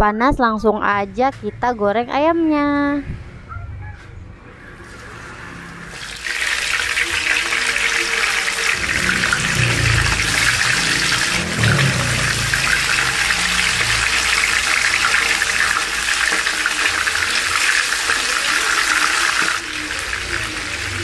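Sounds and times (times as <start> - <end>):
chicken deep-frying in oil: 4.8 - 21.0.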